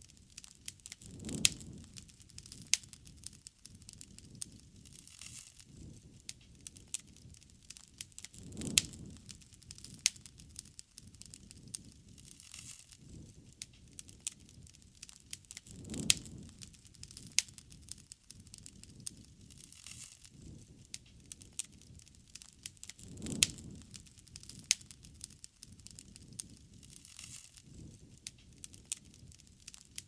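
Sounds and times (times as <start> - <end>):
low rumbling hiss of flames: 0.0 - 30.0
wood fire crackling and popping: 0.0 - 30.0.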